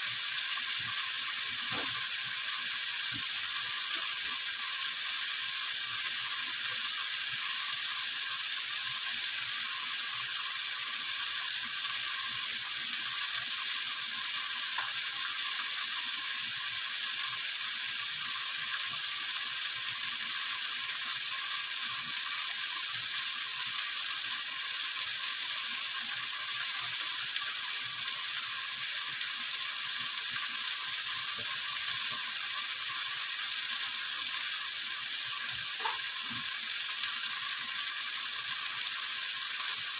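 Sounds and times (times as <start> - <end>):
chicken sizzling in hot oil: 0.0 - 39.9.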